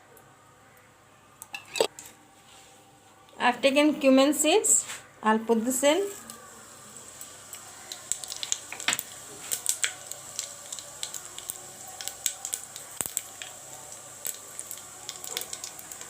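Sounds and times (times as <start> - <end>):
seeds sizzling in hot oil: 5.5 - 16.0.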